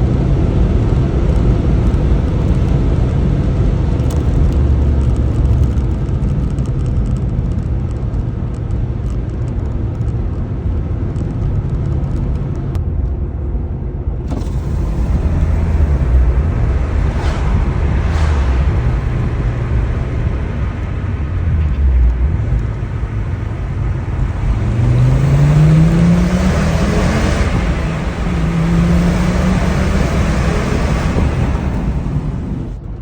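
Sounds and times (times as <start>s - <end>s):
road noise: 0.0s - 33.0s
turbocharged car engine running: 14.2s - 33.0s.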